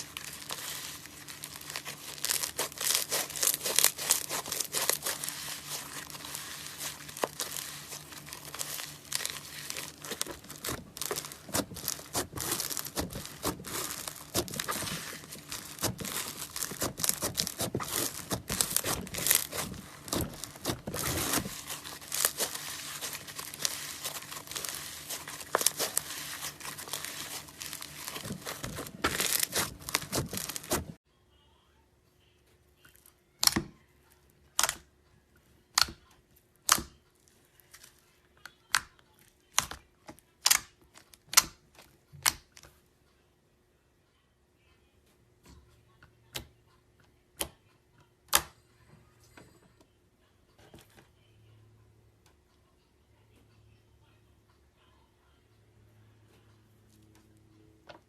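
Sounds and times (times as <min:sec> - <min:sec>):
slime squeezed and crackling: 0:00.0 - 0:31.0.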